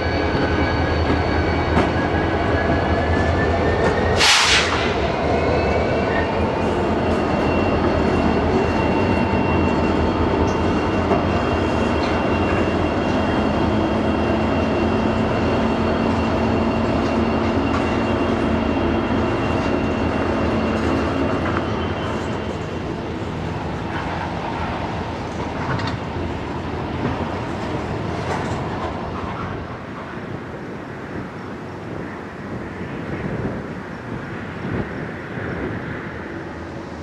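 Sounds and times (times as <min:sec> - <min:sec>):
diesel locomotive engine drone: 0:00.0 - 0:37.0.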